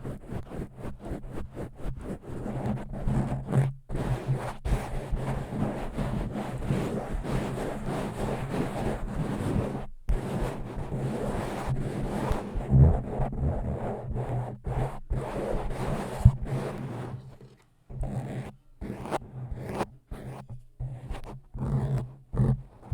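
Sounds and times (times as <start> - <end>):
scratchy rubbing: 0.0 - 22.9.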